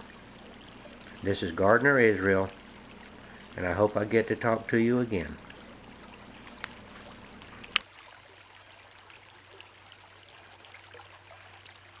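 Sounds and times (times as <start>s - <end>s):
brook babbling: 0.0s - 12.0s.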